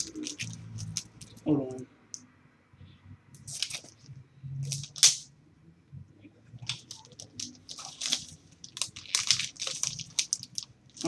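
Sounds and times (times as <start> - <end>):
packaging rustling: 0.0 - 1.4, 3.4 - 4.0, 6.6 - 11.0.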